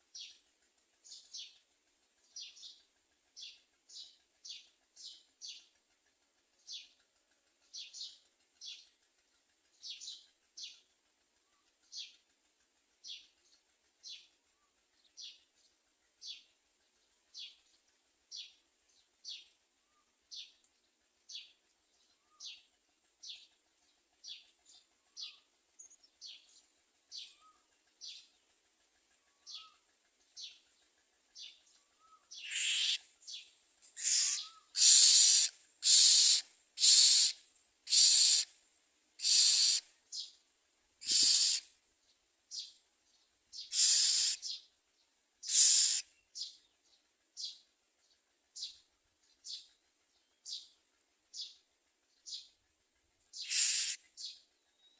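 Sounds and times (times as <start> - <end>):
nestlings calling: 31.4 - 38.5, 39.2 - 40.4, 41.0 - 41.7, 43.6 - 44.7, 45.4 - 46.6, 53.3 - 54.9
harsh hissing begging calls: 32.3 - 33.4, 34.0 - 38.5, 39.2 - 39.9, 41.0 - 41.7, 43.6 - 44.6, 45.4 - 46.1, 53.4 - 54.1.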